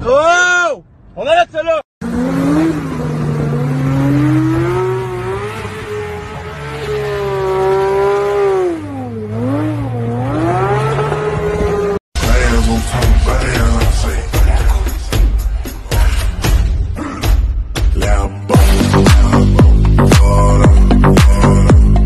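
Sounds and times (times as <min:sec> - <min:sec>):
car engine revving high: 0:02.0 - 0:13.9.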